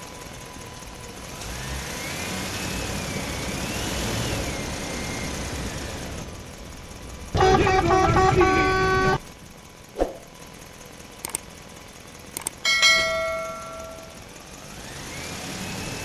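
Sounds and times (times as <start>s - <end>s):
vehicle engine revving: 1.0s - 9.2s, 14.0s - 16.0s
loud horn-like tone: 7.4s - 9.2s.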